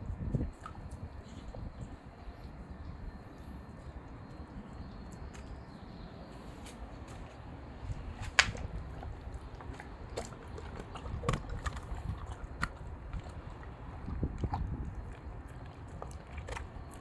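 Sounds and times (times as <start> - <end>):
dog chewing and crunching food: 8.2 - 17.0.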